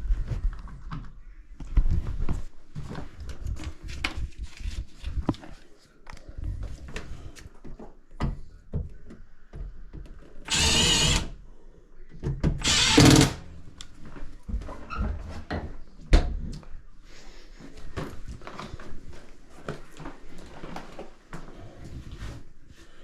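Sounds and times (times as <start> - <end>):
cordless drill running: 10.5 - 11.3, 12.6 - 13.4.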